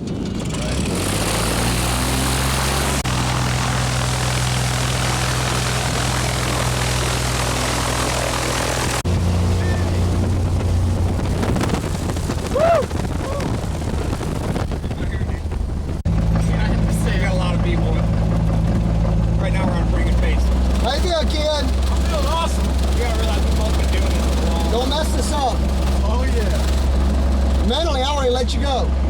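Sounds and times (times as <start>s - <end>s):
propeller airplane engine drone: 0.0s - 29.0s
rising and falling tone: 0.7s - 14.7s.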